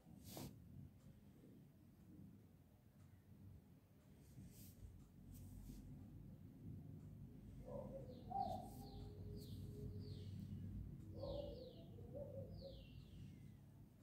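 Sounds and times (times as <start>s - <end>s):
birds chirping faintly: 7.1s - 14.0s
lower short bird calls: 7.7s - 10.4s.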